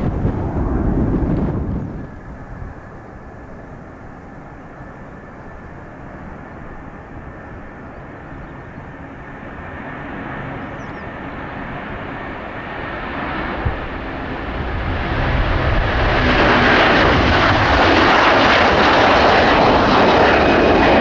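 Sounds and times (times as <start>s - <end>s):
distant jet engine rumble: 0.0s - 21.0s.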